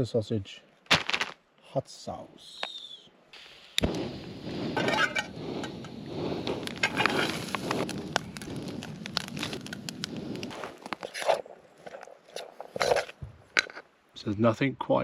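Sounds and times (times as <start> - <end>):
oil crackling and popping: 0.9 - 1.4, 3.4 - 13.8.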